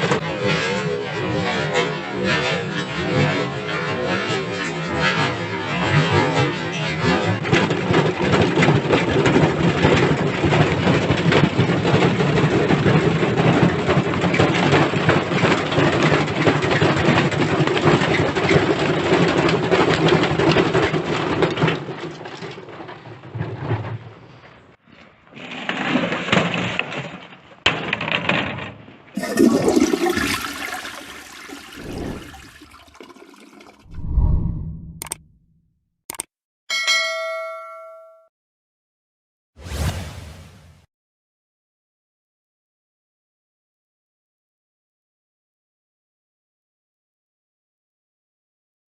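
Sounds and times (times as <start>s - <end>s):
washing machine sloshing water: 29.2s - 33.9s
low rumble: 33.9s - 35.6s.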